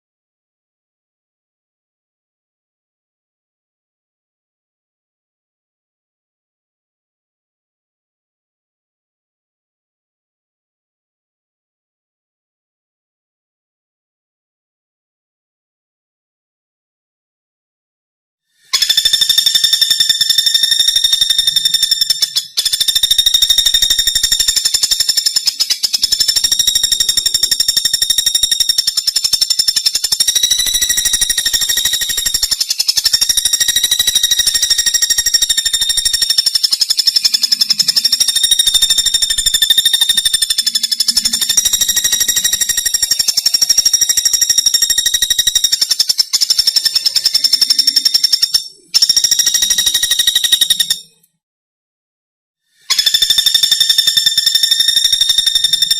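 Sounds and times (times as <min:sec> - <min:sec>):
woodpecker rattling trill: 0:18.7 - 0:51.2, 0:52.9 - 0:55.9.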